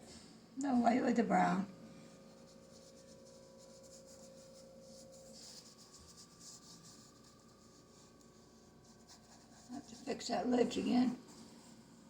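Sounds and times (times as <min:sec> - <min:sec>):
faint steady hum: 0:00.0 - 0:12.0
paintbrush rubbing: 0:02.1 - 0:11.8.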